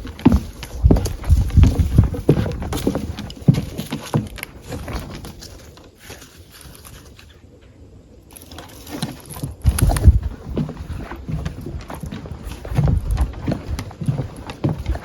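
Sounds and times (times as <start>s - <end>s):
footsteps crunching through dry leaves: 0.0s - 7.4s.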